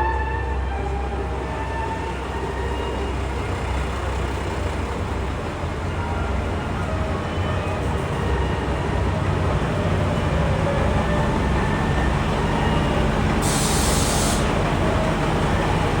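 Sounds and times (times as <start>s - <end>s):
diesel train engine hum: 0.0s - 16.0s
air brake hiss: 13.4s - 14.6s.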